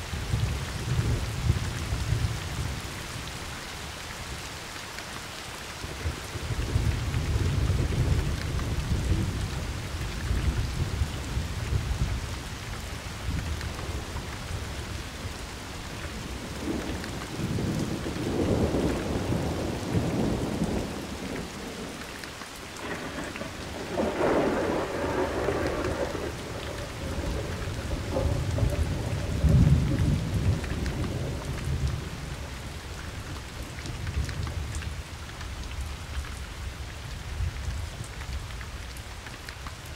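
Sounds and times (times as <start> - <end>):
steady rain: 0.0 - 39.9
thunder rumbling: 16.1 - 22.0, 22.7 - 34.8.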